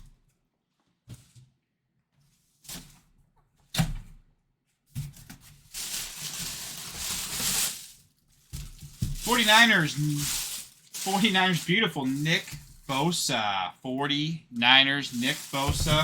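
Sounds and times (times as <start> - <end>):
plastic wrapping crinkling: 5.4 - 13.5, 15.0 - 16.0.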